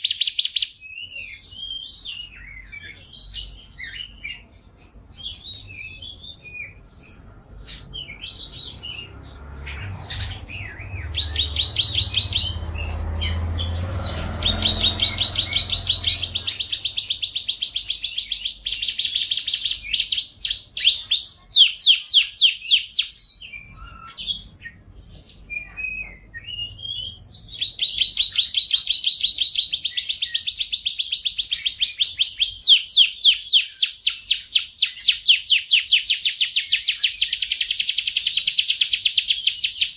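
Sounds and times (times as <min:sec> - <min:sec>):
canary singing trills: 0:00.0 - 0:39.9
low rumble: 0:07.2 - 0:17.3.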